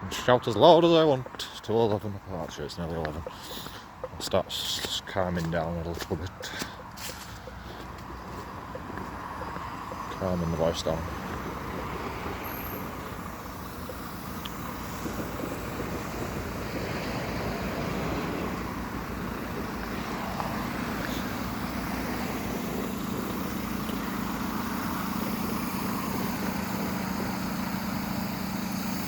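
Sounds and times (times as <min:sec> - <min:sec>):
road noise: 0:00.0 - 0:29.0
vehicle engine running: 0:01.0 - 0:29.0.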